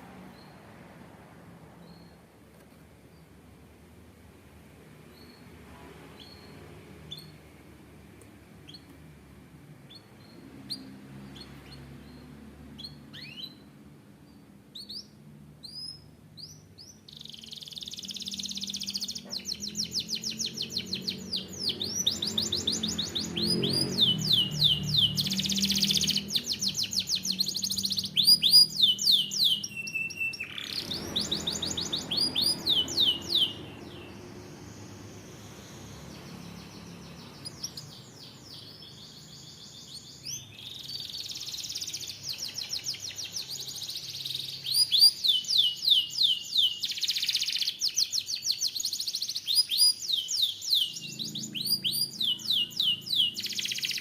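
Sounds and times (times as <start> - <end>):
canary singing: 5.0 - 7.6, 8.2 - 54.0.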